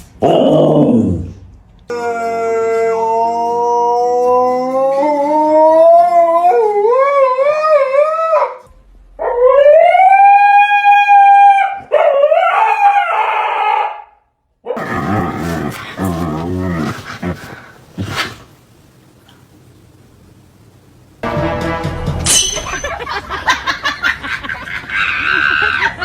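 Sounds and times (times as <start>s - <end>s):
dog howling: 0.2s - 8.6s, 9.2s - 14.1s, 14.7s - 18.4s.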